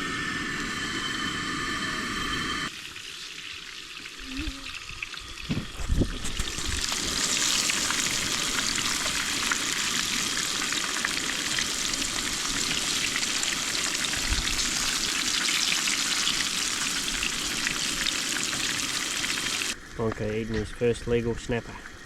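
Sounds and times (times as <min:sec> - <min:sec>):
fish frying in a pan: 0:02.7 - 0:19.9.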